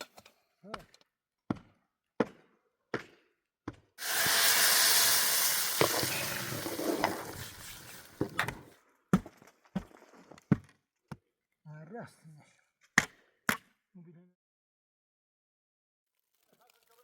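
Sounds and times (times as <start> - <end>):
loud sizzle: 4.0 - 8.6.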